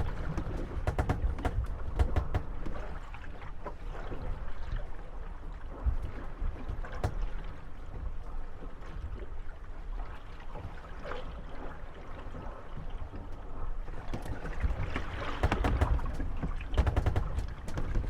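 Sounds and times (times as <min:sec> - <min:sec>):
boat hulls creaking and knocking: 0:00.0 - 0:04.9, 0:05.7 - 0:09.3, 0:12.2 - 0:18.0
water lapping and sloshing: 0:00.0 - 0:18.0.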